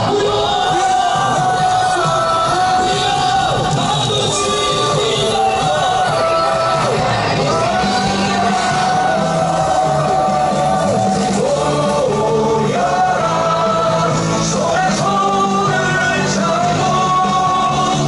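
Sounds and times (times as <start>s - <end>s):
loud backing track: 0.0s - 18.0s
person singing: 0.0s - 18.0s.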